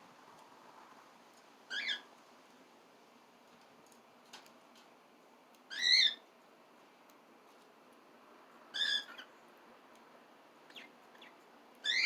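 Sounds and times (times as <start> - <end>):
cockatiel calling: 5.7 - 6.2.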